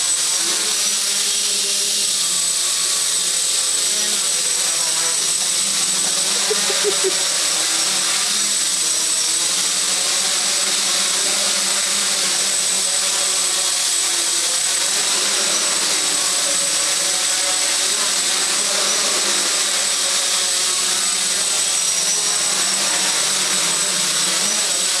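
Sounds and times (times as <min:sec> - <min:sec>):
drone propellers running: 0:00.0 - 0:25.0.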